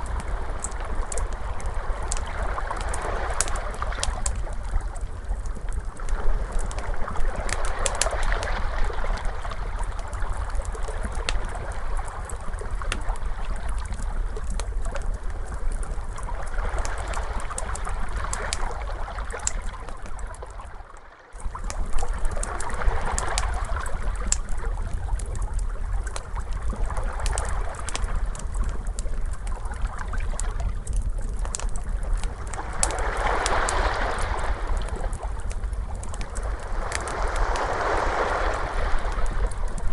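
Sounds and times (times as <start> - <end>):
crackling fire: 0.0 - 39.9
ocean waves washing in: 32.1 - 39.9.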